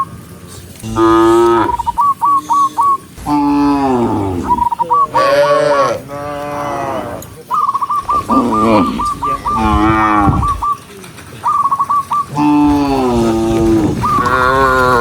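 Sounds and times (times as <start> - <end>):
short high chirps: 0.8 - 3.2
cattle mooing: 0.8 - 7.5, 8.1 - 10.6, 12.3 - 15.0.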